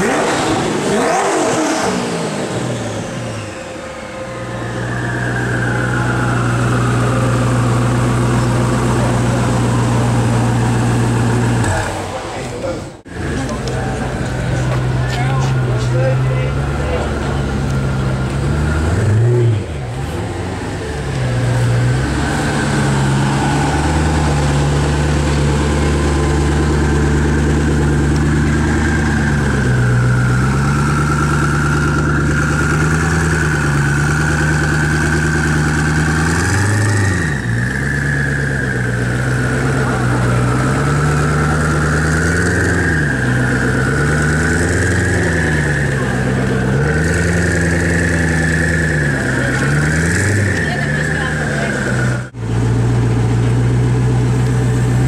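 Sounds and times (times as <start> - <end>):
car engine idling: 0.0 - 55.0
wavering high whine: 2.8 - 9.1.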